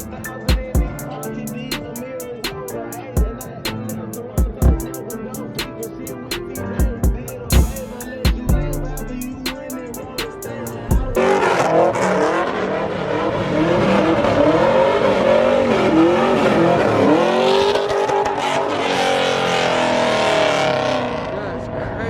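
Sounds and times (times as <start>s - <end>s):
car engine revving hard: 11.0s - 22.0s.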